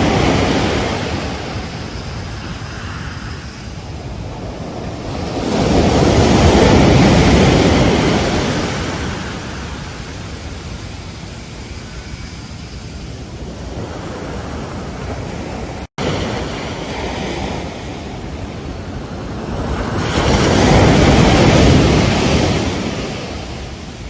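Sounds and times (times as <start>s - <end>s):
wave breaking: 0.0s - 10.5s
waves washing onto beach: 0.0s - 24.0s.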